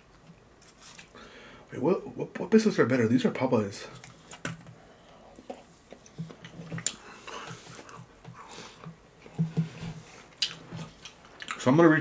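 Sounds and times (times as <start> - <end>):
biscuit being chewed: 5.4 - 11.6.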